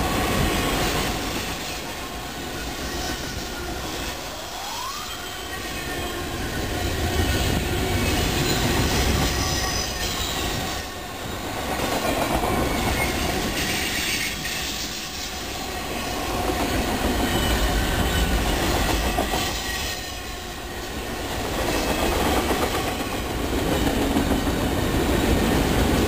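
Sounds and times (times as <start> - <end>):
freight train wheels rumbling: 0.0 - 26.0
high wheel squeals: 0.5 - 11.5, 12.5 - 22.2.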